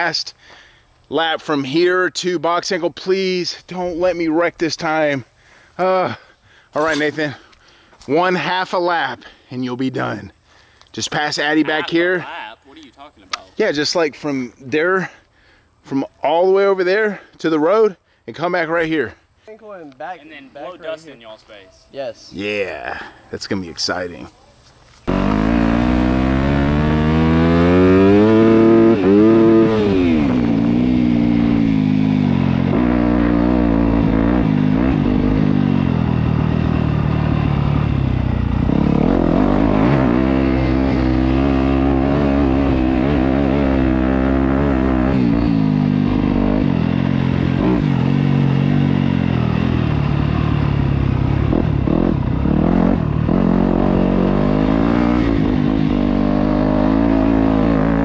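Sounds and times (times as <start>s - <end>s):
dirt bike engine revving: 25.1s - 58.0s.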